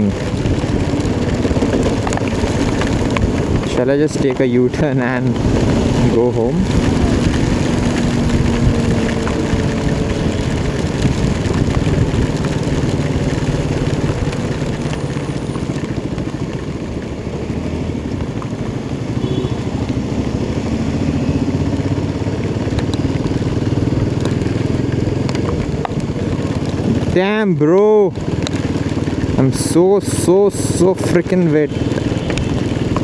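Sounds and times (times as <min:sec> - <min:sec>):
wind rushing: 0:00.0 - 0:14.6
heavy rain: 0:00.0 - 0:33.0
motorcycle engine running: 0:00.0 - 0:33.0.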